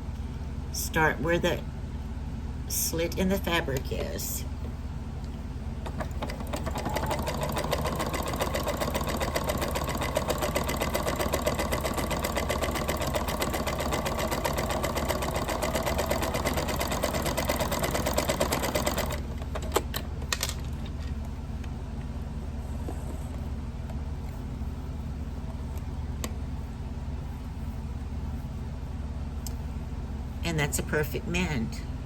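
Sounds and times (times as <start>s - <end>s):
sewing machine running: 5.8s - 19.9s.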